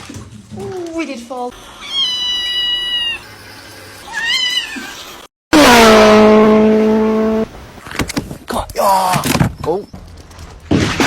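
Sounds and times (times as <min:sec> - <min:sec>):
cat meowing: 0:01.8 - 0:03.2, 0:04.1 - 0:05.0.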